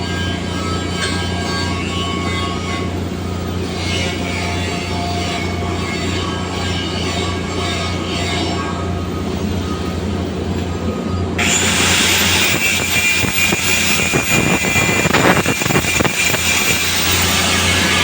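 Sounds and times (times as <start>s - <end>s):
welding arc hissing and crackling: 11.4s - 18.0s.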